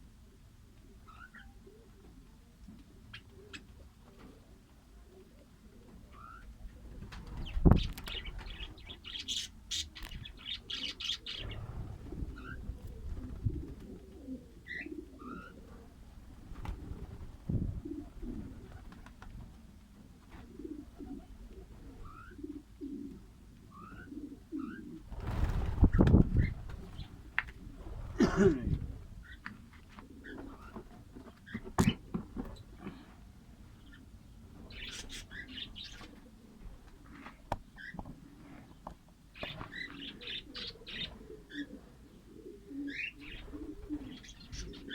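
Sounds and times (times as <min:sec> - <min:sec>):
bird cooing: 0:00.9 - 0:02.4, 0:03.1 - 0:07.0, 0:08.1 - 0:16.0, 0:16.8 - 0:19.0, 0:20.3 - 0:25.1, 0:30.0 - 0:30.8, 0:34.7 - 0:36.7, 0:39.4 - 0:44.9
wing flapping rustle: 0:06.8 - 0:08.8, 0:15.7 - 0:21.3, 0:25.0 - 0:28.2.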